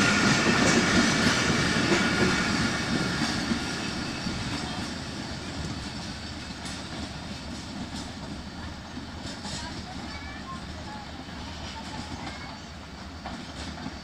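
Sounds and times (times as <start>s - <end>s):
train coaches rumbling: 0.0s - 14.0s.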